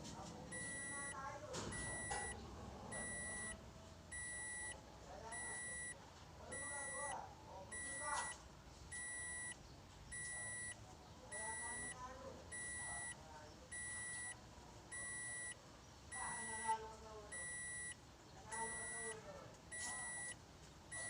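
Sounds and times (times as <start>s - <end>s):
electronic beeper beeping: 0.5s - 1.1s, 1.7s - 4.7s, 17.4s - 17.9s, 19.7s - 20.3s.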